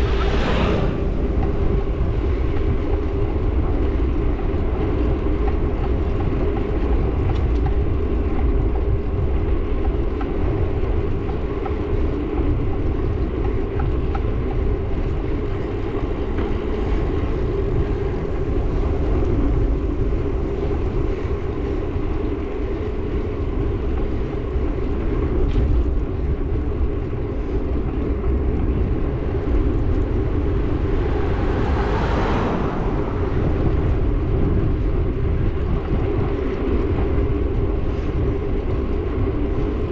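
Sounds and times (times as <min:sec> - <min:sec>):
vehicle passing: 0:00.0 - 0:04.0, 0:29.2 - 0:35.2
road noise: 0:00.0 - 0:39.9
wind buffeting microphone: 0:00.0 - 0:39.9.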